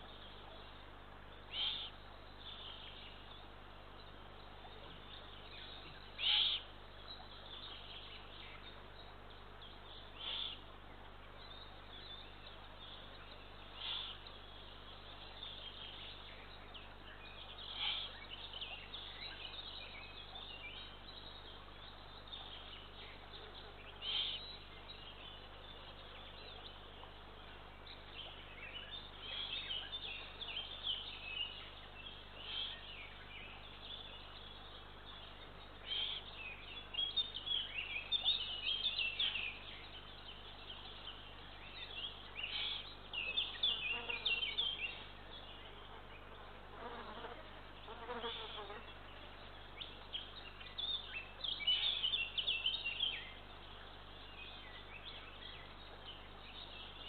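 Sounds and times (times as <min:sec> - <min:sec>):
faint steady hum: 0:00.0 - 0:57.0
small chirping calls: 0:01.5 - 0:02.0.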